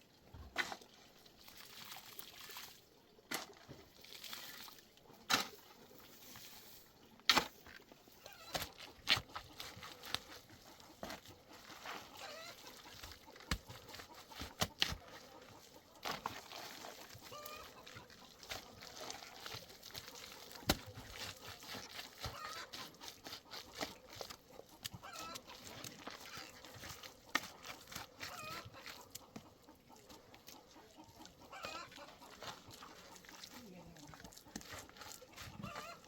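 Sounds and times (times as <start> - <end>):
chickens clucking: 8.2 - 36.0.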